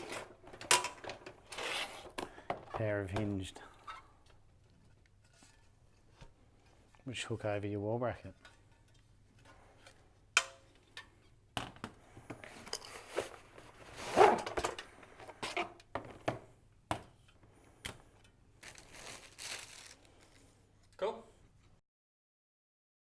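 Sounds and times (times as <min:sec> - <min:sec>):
scraping and rustling: 0:12.5 - 0:15.7, 0:18.6 - 0:20.5.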